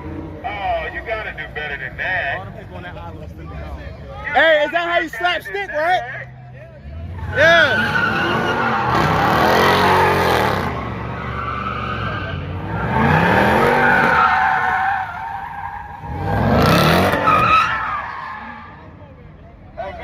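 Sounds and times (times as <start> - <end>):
car engine revving: 6.8 - 18.9
tyres spinning and squealing: 6.8 - 20.0.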